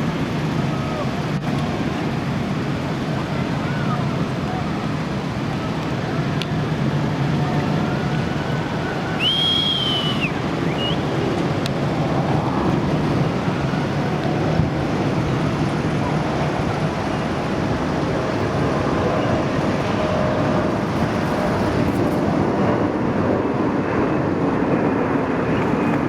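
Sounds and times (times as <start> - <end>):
jet engines roaring overhead: 0.0 - 26.0
high whistle: 9.0 - 11.1.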